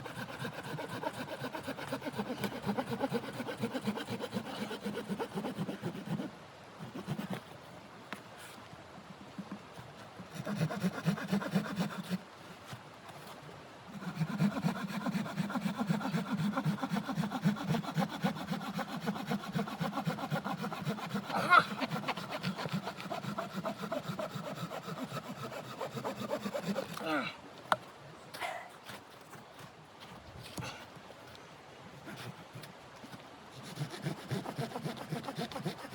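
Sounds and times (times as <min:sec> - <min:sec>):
hand saw cutting wood: 0:00.0 - 0:07.4, 0:10.3 - 0:12.2, 0:13.9 - 0:27.3, 0:32.0 - 0:32.8, 0:33.6 - 0:35.9.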